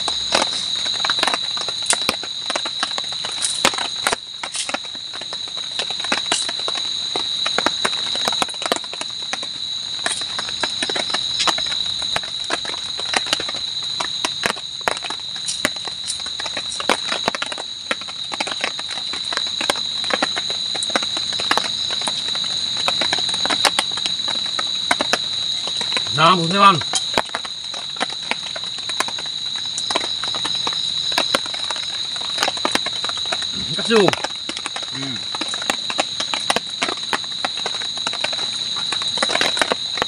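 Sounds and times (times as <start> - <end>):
night insects chirring: 0.0 - 40.0.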